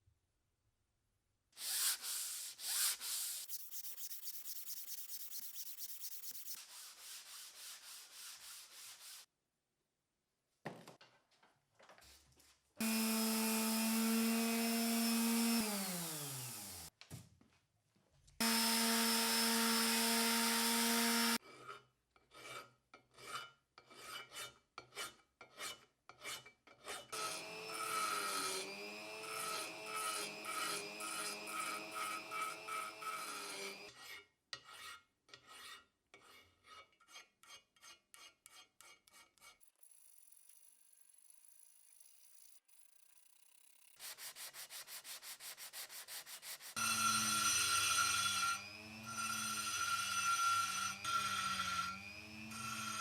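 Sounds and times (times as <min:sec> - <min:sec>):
small electric tool motor: 0:01.6 - 0:06.6, 0:12.8 - 0:16.9, 0:18.4 - 0:21.4, 0:27.1 - 0:34.0, 0:39.8 - 0:44.7, 0:46.4 - 0:53.0
hand file rasping on metal: 0:01.6 - 0:09.3, 0:18.4 - 0:39.7, 0:43.8 - 0:53.0.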